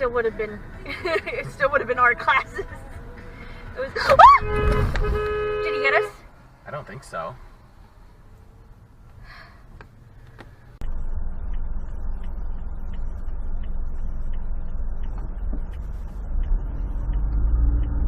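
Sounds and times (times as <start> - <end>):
car driving rumble: 0.0 - 18.0
light ticks: 9.8 - 18.0.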